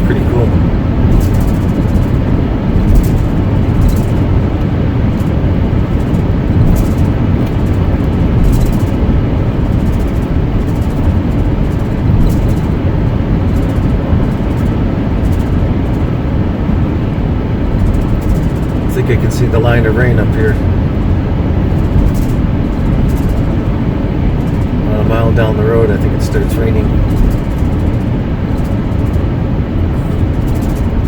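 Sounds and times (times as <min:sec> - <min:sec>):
car road noise rumble: 0:00.0 - 0:31.0.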